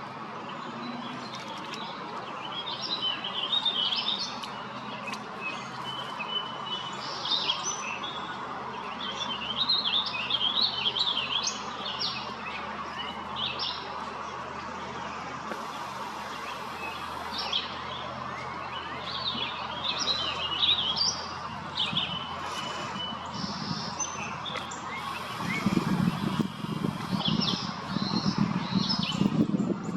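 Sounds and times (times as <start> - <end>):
birds chirping and singing: 18.7 - 29.6.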